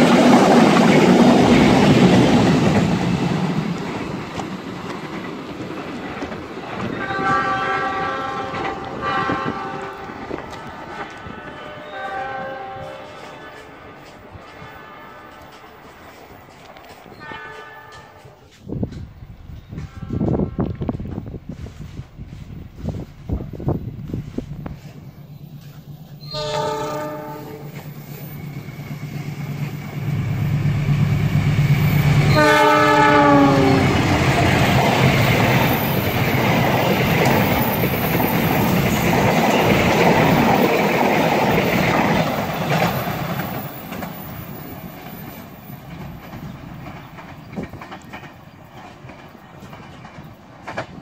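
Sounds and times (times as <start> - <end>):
train wheels rushing on rails: 0.0 - 51.0
train horn blasts: 6.9 - 15.7, 17.1 - 18.6, 19.7 - 21.0, 26.2 - 27.9, 32.0 - 34.2.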